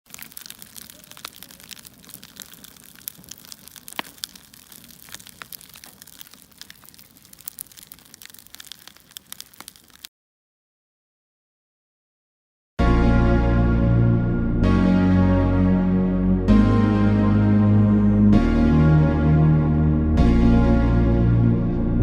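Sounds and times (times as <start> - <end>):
wood fire crackling: 0.0 - 10.1.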